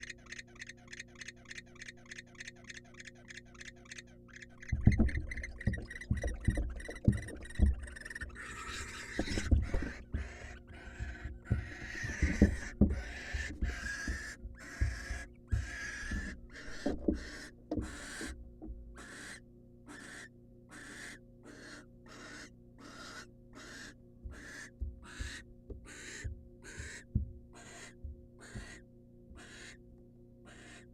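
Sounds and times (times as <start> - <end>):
owl clicking calls: 0.0 - 18.4, 19.0 - 28.8, 29.4 - 29.8, 30.5 - 30.9
owl hissing calls: 6.8 - 18.3, 19.0 - 27.0, 27.6 - 28.8, 29.4 - 29.8, 30.5 - 30.9.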